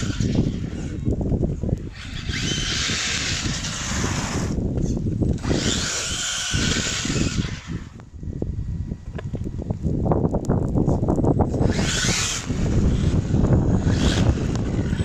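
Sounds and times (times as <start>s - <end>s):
electric motor whine: 0.0s - 8.1s, 11.5s - 15.0s.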